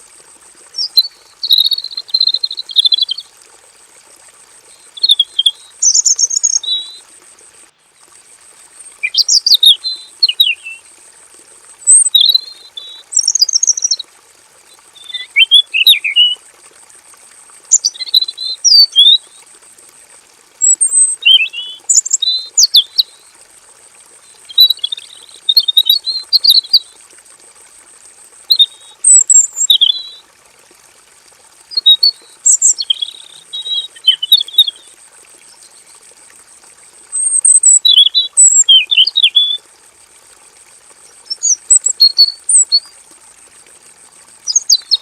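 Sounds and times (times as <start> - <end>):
bird singing whistled notes: 0.8 - 3.2, 4.8 - 7.0, 9.0 - 10.8, 11.9 - 14.0, 15.0 - 16.4, 17.7 - 19.3, 20.6 - 23.1, 24.4 - 26.9, 28.5 - 30.2, 31.7 - 34.9, 37.2 - 39.6, 41.3 - 42.9.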